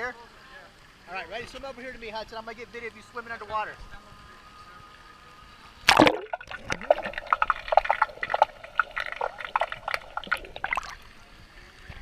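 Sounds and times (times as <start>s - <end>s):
water splashing: 5.8s - 11.3s
underwater bubbling and gurgling: 5.9s - 11.4s.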